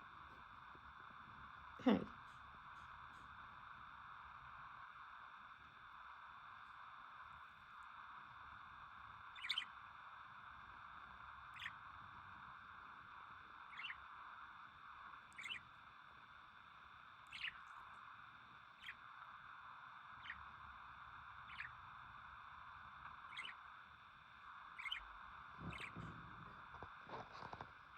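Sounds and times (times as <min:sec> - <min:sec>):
faint high bird chirps: 0:09.2 - 0:09.8, 0:11.5 - 0:11.8, 0:13.6 - 0:14.2, 0:15.2 - 0:15.8, 0:17.2 - 0:18.0, 0:18.7 - 0:19.2, 0:20.0 - 0:20.7, 0:21.4 - 0:22.0, 0:23.0 - 0:23.8, 0:24.6 - 0:27.6.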